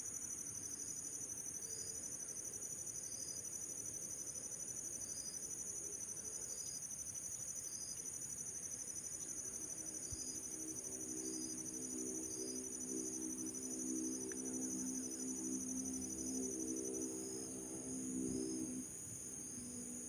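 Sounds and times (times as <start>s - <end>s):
insects trilling: 4.2s - 20.0s
short insect chirp: 7.5s - 20.0s.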